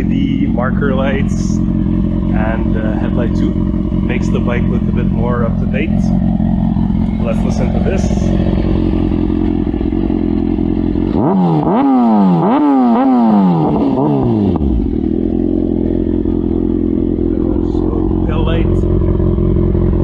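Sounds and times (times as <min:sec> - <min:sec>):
motorcycle engine idling and revving: 0:00.0 - 0:20.0.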